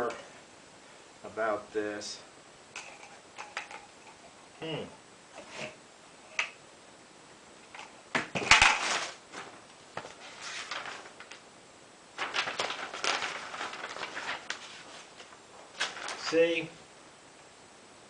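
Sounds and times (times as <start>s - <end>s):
rustling and handling noise: 2.7s - 4.6s, 5.3s - 6.6s, 7.6s - 11.5s, 12.1s - 16.8s.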